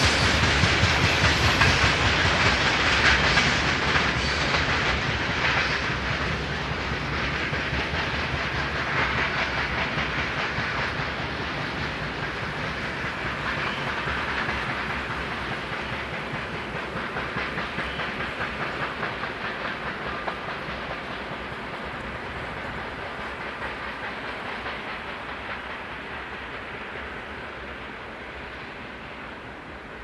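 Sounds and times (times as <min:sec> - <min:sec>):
freight train wagons rolling: 0:00.0 - 0:05.8.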